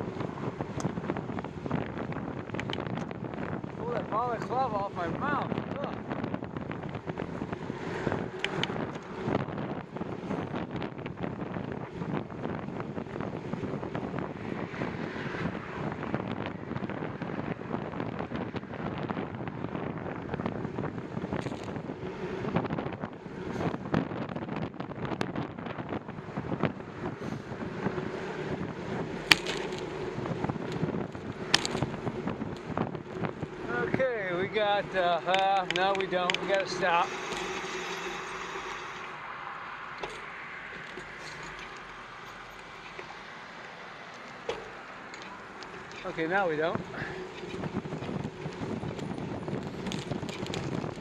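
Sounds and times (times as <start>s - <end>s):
wind buffeting microphone: 0.0s - 51.0s
bicycle knocks and rattles: 0.1s - 3.7s, 16.0s - 26.8s, 27.8s - 33.6s, 40.0s - 43.1s, 44.1s - 51.0s
sharp clicks: 35.3s - 36.7s.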